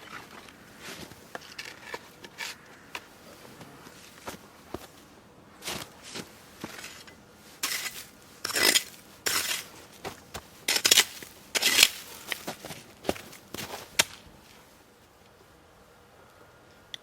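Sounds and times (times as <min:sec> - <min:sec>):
objects scraping and clattering: 0:00.0 - 0:03.1, 0:05.6 - 0:12.5.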